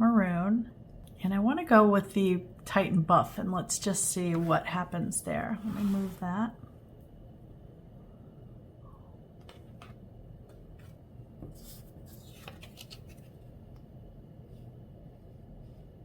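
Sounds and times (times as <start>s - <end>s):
brush swishing scrapes: 5.6s - 6.4s.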